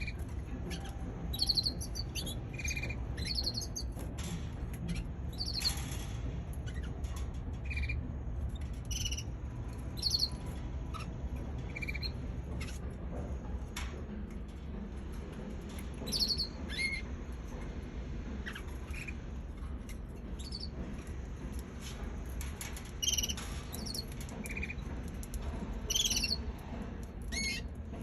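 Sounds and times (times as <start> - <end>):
canary chirping: 0.0 - 4.0, 4.9 - 5.8, 7.6 - 8.0, 8.8 - 11.1, 11.7 - 12.8, 16.1 - 17.0, 20.4 - 20.7, 23.0 - 24.8, 25.9 - 26.4.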